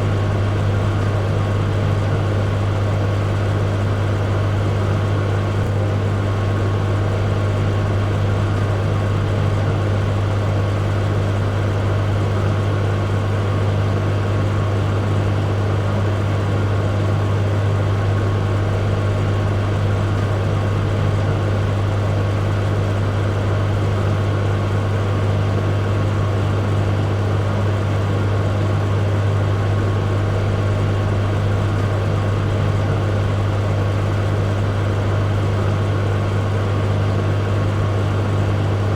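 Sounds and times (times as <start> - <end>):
microwave oven humming: 0.0 - 38.9.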